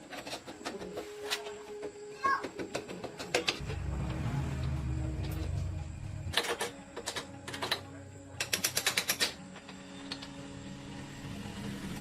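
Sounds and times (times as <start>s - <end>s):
metallic clicks of hand tools: 6.3s - 10.3s.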